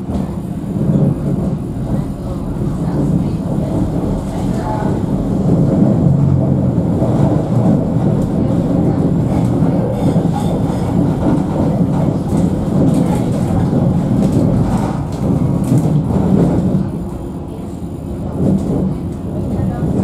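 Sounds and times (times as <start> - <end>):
tram wheels rumbling on rails: 0.0 - 20.0
track clicks and knocks: 2.8 - 17.0.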